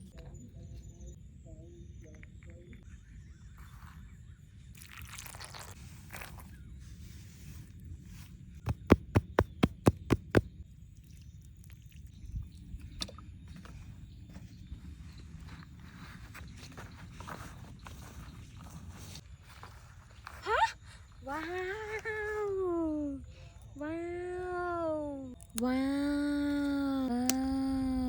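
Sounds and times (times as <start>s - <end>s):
rustling and scraping: 13.5s - 20.4s.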